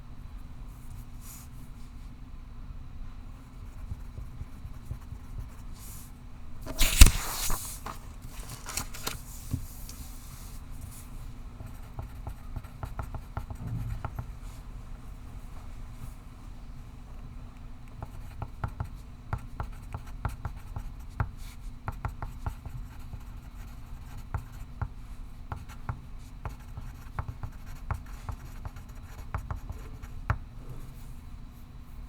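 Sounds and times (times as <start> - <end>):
low room hum: 0.0 - 32.0
pencil writing on paper: 25.5 - 30.2.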